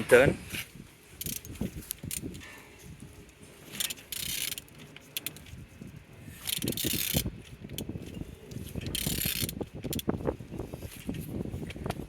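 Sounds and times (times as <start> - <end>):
ratchet-like clicks: 1.2 - 2.4, 3.8 - 5.6, 6.4 - 7.9, 8.8 - 10.1.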